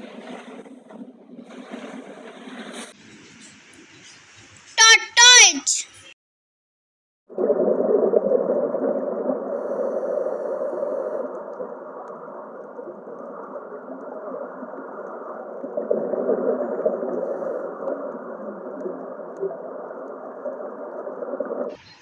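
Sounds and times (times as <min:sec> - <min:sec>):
muffled underwater rushing: 0:00.0 - 0:03.4, 0:07.3 - 0:22.0.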